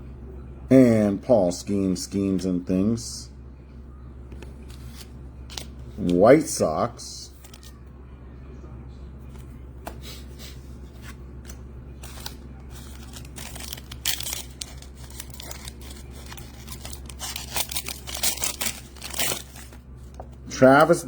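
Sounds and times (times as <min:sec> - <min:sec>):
steady low hum: 0:00.0 - 0:21.0
wrappers rustling and tearing: 0:12.0 - 0:20.2.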